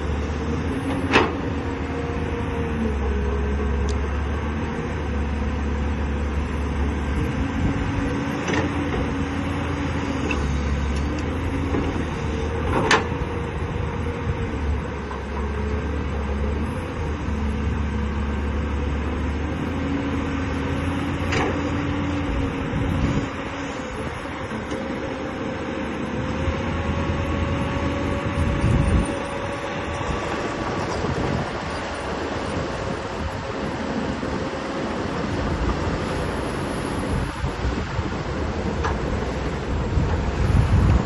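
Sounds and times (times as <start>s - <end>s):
excavator diesel engine droning: 0.0s - 41.0s
hydraulic whine: 21.0s - 41.0s.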